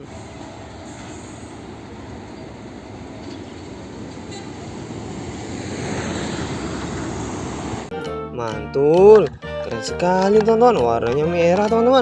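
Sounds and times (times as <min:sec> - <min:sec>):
vehicle rumble and hiss: 0:00.0 - 0:07.9.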